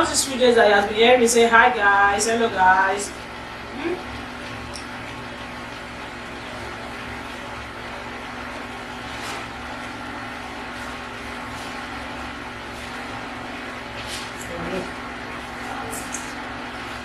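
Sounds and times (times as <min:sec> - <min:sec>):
machine humming and hissing: 0:00.0 - 0:17.0.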